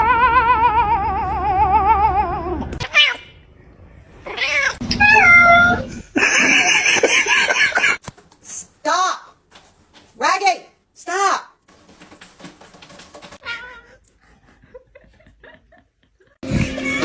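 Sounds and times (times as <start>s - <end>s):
cat yowling and meowing: 0.0s - 3.4s, 4.2s - 5.9s, 13.4s - 14.0s.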